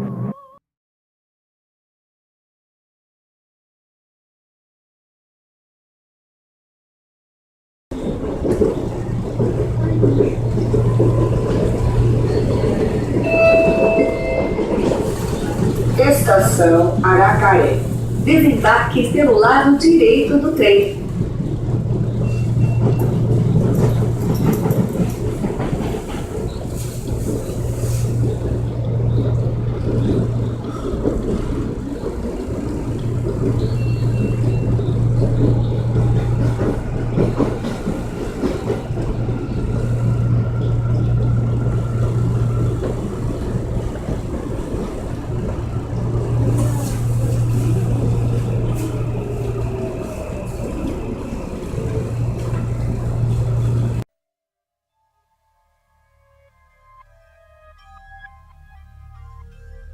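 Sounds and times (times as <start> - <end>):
train rumbling: 0.0 - 0.6, 7.9 - 54.1
low motor hum: 21.0 - 54.0.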